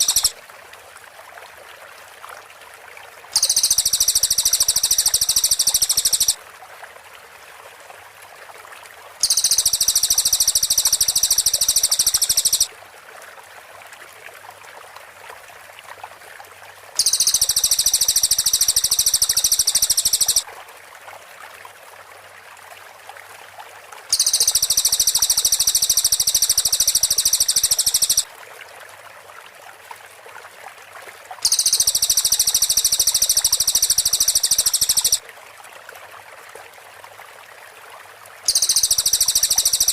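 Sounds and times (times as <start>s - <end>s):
rapid high-pitched bird song: 0.0s - 0.3s, 3.4s - 6.4s, 9.2s - 12.7s, 17.0s - 20.4s, 24.1s - 28.2s, 31.4s - 35.2s, 38.5s - 39.9s.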